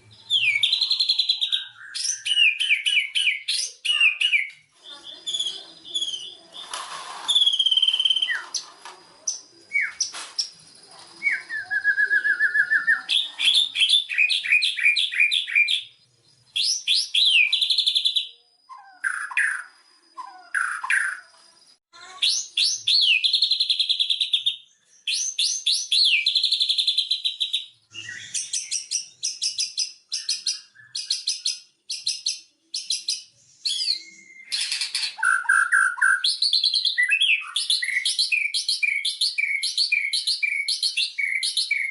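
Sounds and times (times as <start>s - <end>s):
bird singing whistles and trills: 0.0s - 21.4s, 22.2s - 41.9s.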